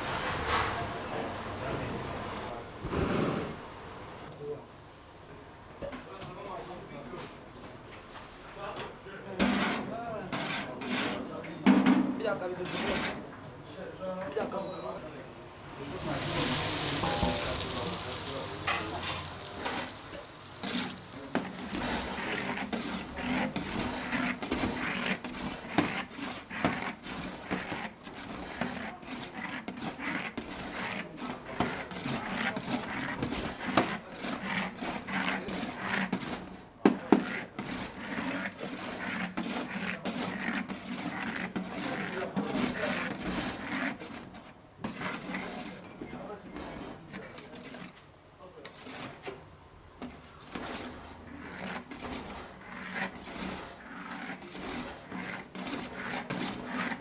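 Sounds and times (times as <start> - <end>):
hand rubbing and scraping on hard surface: 1.8 - 4.3, 15.7 - 57.0.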